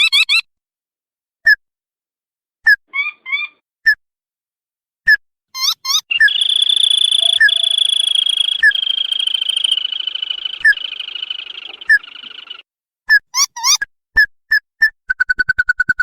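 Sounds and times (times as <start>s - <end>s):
rail bird high trill: 5.6s - 12.6s
rail bird rising notes: 6.1s - 12.6s.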